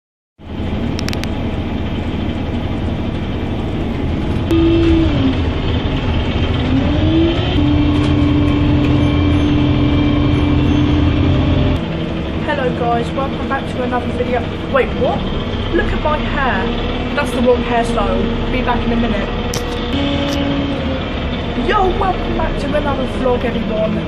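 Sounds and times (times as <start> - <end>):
vehicle engine rumbling: 0.4 - 24.0.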